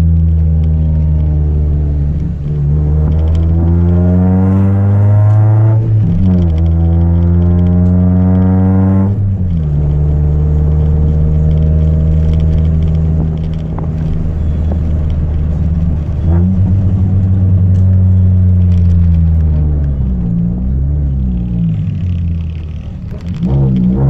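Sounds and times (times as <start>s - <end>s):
car engine at steady revs: 0.0s - 24.0s.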